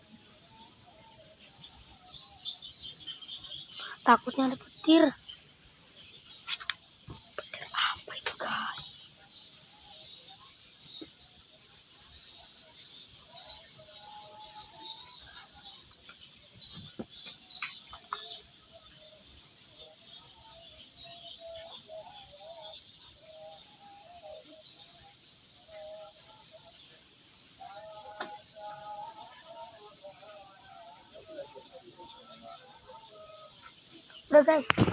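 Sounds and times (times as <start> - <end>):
crickets chirring: 0.0 - 34.9.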